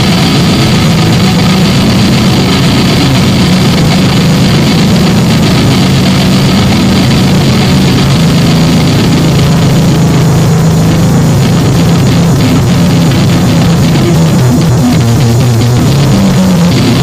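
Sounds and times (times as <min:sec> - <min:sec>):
distorted harsh noise music: 0:00.0 - 0:17.0.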